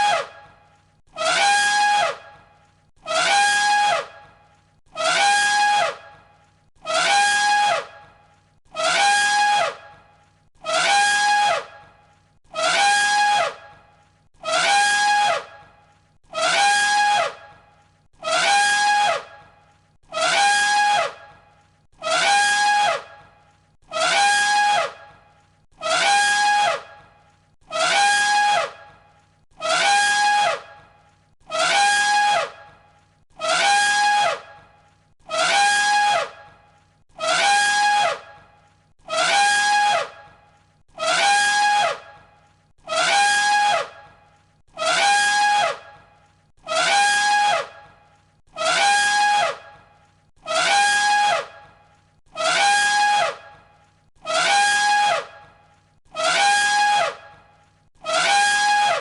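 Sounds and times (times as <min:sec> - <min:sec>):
elephant trumpet call: 0:01.1 - 0:02.4, 0:03.0 - 0:04.3, 0:04.9 - 0:06.2, 0:06.8 - 0:08.0, 0:08.7 - 0:10.0, 0:10.6 - 0:11.9, 0:12.5 - 0:13.8, 0:14.4 - 0:17.6, 0:18.2 - 0:23.3, 0:23.9 - 0:27.1, 0:27.7 - 0:32.8, 0:33.4 - 0:59.0.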